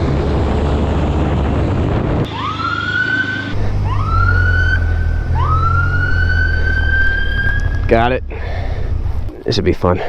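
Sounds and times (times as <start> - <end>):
low engine hum: 0.0 - 10.0
rough vehicle rumble: 0.0 - 10.0
police siren whooping: 2.3 - 8.0.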